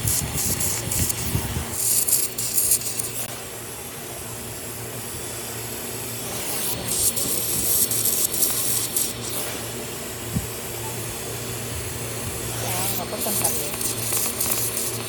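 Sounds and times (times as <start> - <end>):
hand tool rasping on battery: 0.0 - 3.2, 12.9 - 15.0
steady low hum: 0.0 - 15.0.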